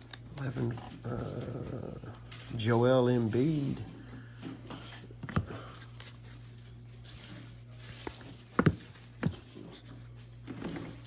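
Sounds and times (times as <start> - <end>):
low electrical hum: 0.0 - 11.0
cards being handled: 4.7 - 11.0.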